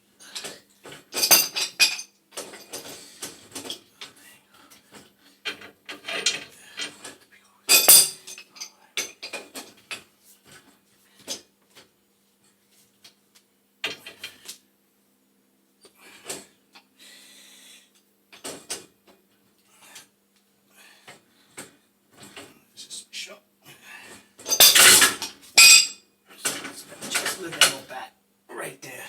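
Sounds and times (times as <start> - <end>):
faint steady hum: 0.0 - 29.0
metal tools clinking and clanking: 1.1 - 2.9, 7.7 - 9.7, 24.4 - 27.9.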